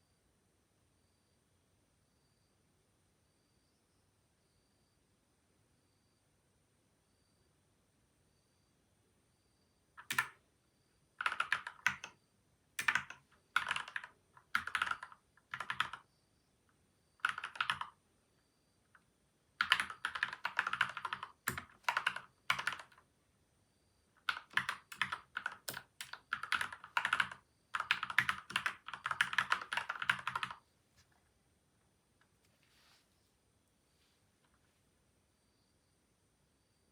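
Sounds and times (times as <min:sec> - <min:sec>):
mechanical keyboard typing: 0:10.0 - 0:10.4, 0:11.2 - 0:12.2, 0:12.8 - 0:16.0, 0:17.2 - 0:18.0, 0:19.6 - 0:23.0, 0:24.2 - 0:30.6.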